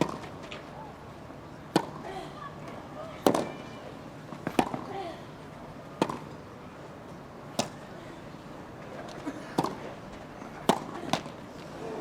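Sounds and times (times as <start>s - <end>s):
racquets hitting tennis ball: 0.0s - 0.7s, 1.7s - 3.7s, 4.3s - 4.9s, 6.0s - 6.4s, 7.5s - 7.9s, 8.8s - 11.7s.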